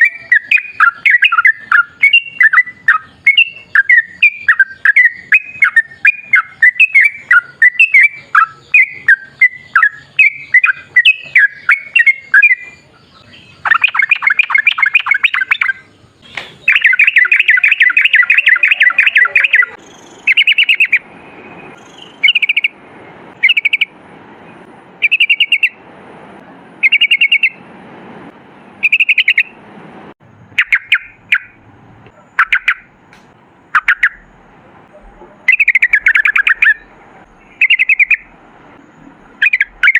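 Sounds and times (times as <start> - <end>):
bulbul singing: 0.0 - 22.8, 23.4 - 24.0, 25.0 - 25.8, 26.8 - 27.6, 28.8 - 29.6, 30.4 - 39.9.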